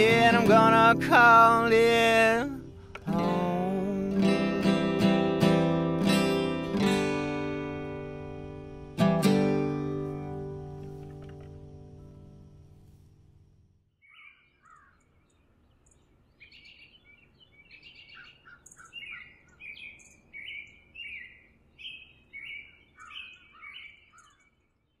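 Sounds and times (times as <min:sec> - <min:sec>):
wild birds singing: 0:00.0 - 0:13.0, 0:14.0 - 0:25.0
acoustic guitar chord: 0:00.0 - 0:13.5.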